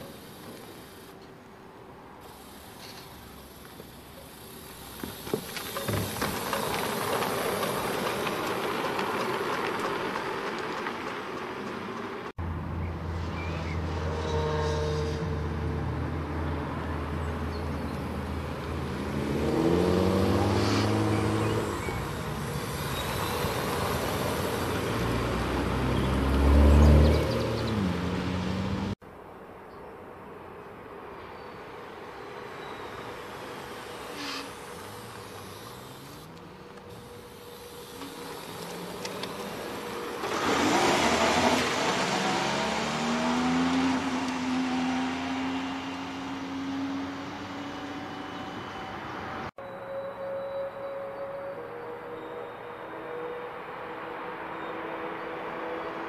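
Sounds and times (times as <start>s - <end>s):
car engine revving: 18.7s - 29.0s, 37.1s - 48.3s.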